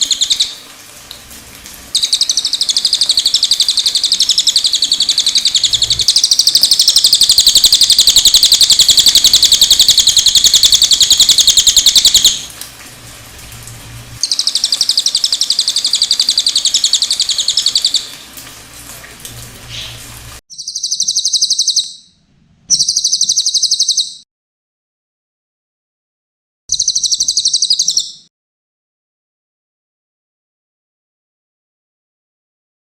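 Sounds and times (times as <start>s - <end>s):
songbird high-pitched trills: 0.0s - 0.6s, 2.0s - 12.5s, 14.2s - 18.1s, 19.7s - 22.1s, 22.7s - 24.2s, 26.7s - 28.2s
faint water noise: 0.0s - 20.4s.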